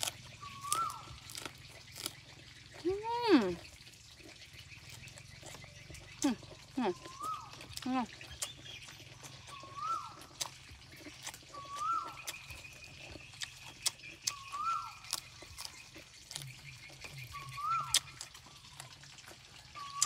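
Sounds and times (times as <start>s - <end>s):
chewing: 0.0s - 20.0s
bird whistling: 0.3s - 1.3s, 6.9s - 7.6s, 8.3s - 10.3s, 11.5s - 13.4s, 14.2s - 15.2s, 16.6s - 18.7s, 19.8s - 20.0s.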